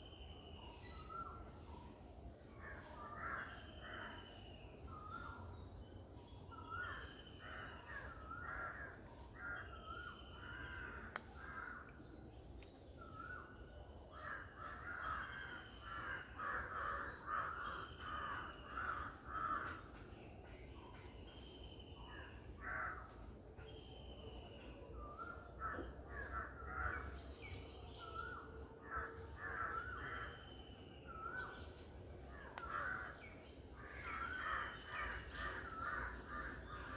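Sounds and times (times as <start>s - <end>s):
harsh caw-like bird calls: 14.2s - 20.0s, 32.3s - 36.9s.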